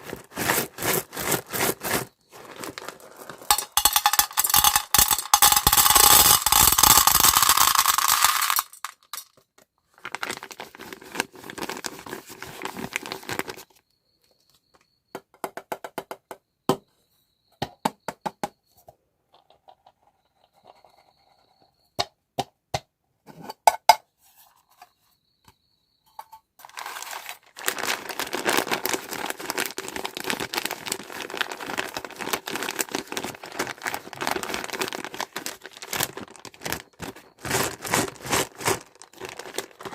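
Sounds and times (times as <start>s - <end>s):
plastic packaging crinkling and tearing: 0.0s - 3.5s, 10.0s - 13.6s, 26.6s - 39.9s.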